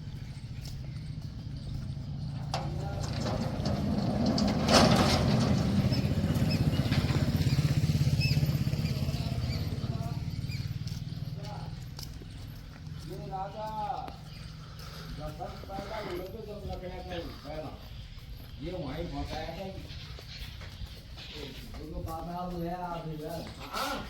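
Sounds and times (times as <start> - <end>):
vehicle engine passing: 0.4 - 16.7.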